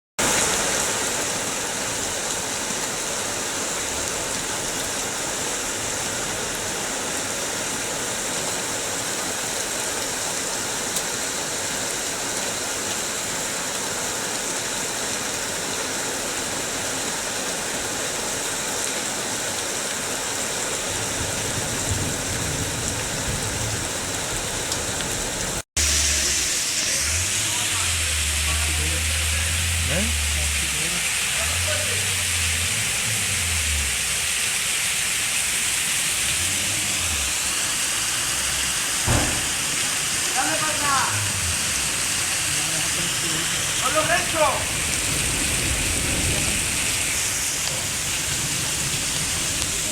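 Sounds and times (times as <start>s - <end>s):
rain pouring: 0.2s - 49.9s
water running and splashing: 0.2s - 49.9s
low rumble: 25.8s - 40.3s.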